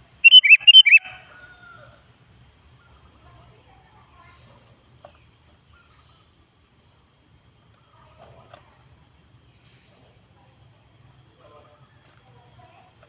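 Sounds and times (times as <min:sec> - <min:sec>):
bird chirping: 0:00.0 - 0:01.2.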